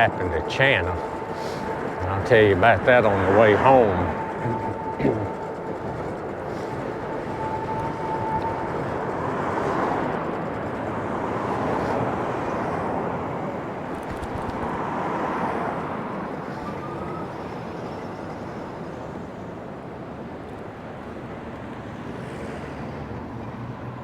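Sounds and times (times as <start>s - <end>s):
vehicles passing: 0.0s - 17.2s
wind rush: 0.0s - 17.2s
traffic: 0.0s - 24.0s.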